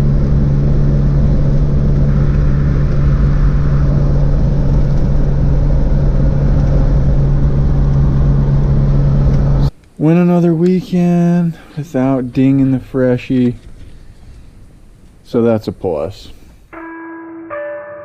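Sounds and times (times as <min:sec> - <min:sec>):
vehicle engine droning: 0:00.0 - 0:09.7.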